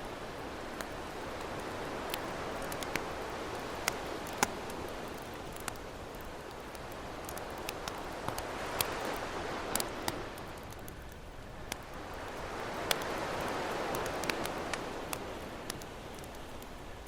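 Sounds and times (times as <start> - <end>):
campfire crackling and popping: 0.0 - 17.0
ocean waves: 0.0 - 17.0.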